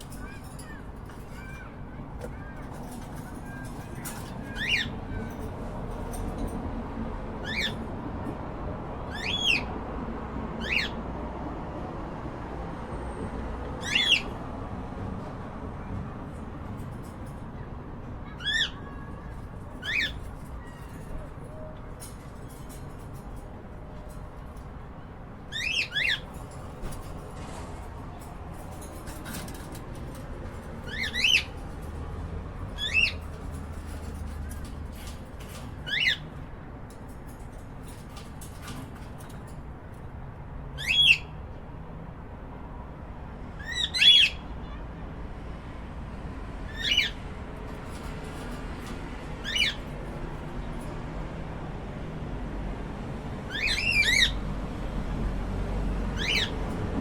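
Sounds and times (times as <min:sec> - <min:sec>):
cockatiels chirping: 0:00.2 - 0:05.0, 0:07.4 - 0:07.8, 0:09.1 - 0:09.7, 0:10.6 - 0:11.0, 0:13.8 - 0:14.4, 0:18.2 - 0:21.3, 0:25.5 - 0:26.3, 0:30.8 - 0:31.7, 0:32.8 - 0:36.4, 0:40.8 - 0:41.4, 0:43.6 - 0:44.8, 0:46.7 - 0:47.2, 0:49.4 - 0:49.9, 0:53.5 - 0:54.4, 0:56.2 - 0:56.6.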